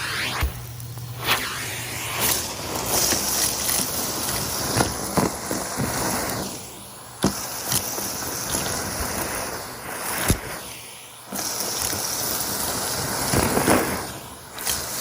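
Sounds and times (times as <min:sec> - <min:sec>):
vacuum cleaner running: 0:00.0 - 0:15.0
debris rattling up hose: 0:02.2 - 0:06.4.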